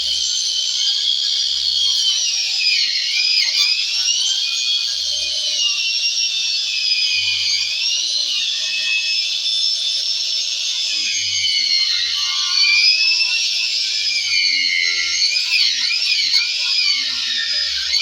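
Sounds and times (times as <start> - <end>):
power tool whining cutting wood: 0.0 - 18.0.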